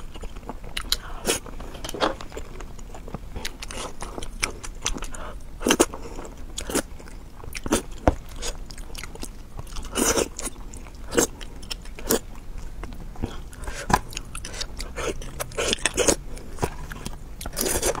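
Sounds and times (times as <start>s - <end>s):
wet biting and chewing: 6.6s - 18.0s.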